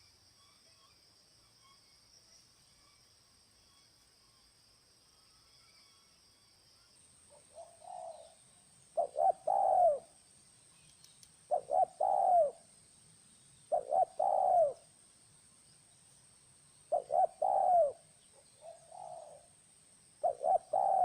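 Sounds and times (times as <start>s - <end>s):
dove cooing: 7.3s - 8.4s, 9.0s - 10.1s, 11.5s - 12.6s, 13.7s - 14.8s, 16.9s - 18.0s, 18.6s - 19.5s, 20.2s - 21.0s.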